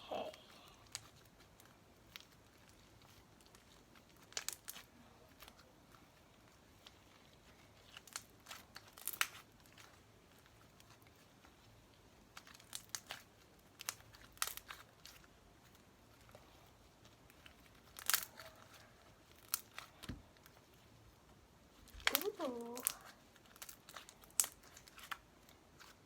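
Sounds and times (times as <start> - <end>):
sticky slime clicks and crackles: 0.8 - 5.6, 7.8 - 11.2, 12.2 - 15.3, 17.3 - 20.6, 21.8 - 26.0.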